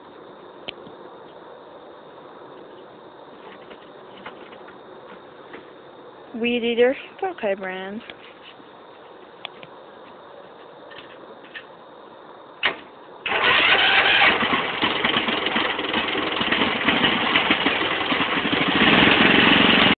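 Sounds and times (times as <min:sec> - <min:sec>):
small petrol engine running: 0:13.3 - 0:20.0.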